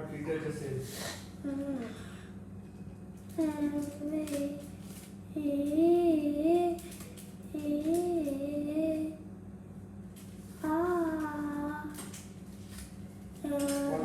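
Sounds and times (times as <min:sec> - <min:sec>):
steady low hum: 0:00.0 - 0:14.0
child singing: 0:03.4 - 0:04.7, 0:05.3 - 0:06.9, 0:07.5 - 0:09.2, 0:10.6 - 0:12.0.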